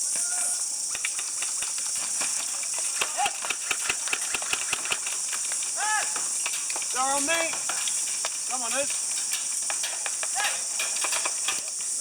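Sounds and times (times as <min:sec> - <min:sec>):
steady high hiss: 0:00.0 - 0:12.0
airsoft guns firing: 0:02.8 - 0:05.3.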